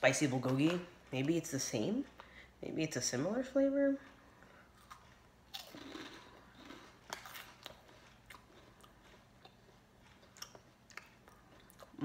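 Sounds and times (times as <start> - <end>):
crunchy snack chewing: 4.7 - 12.0.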